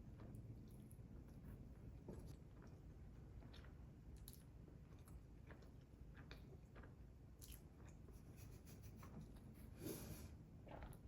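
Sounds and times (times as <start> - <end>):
person chewing food: 0.0 - 8.2.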